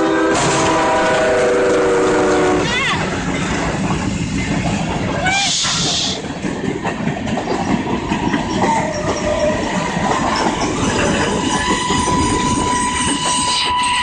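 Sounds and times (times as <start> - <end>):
train wheels rumbling on rail: 0.0 - 14.0
high-pitched wheel squeal: 10.4 - 14.0.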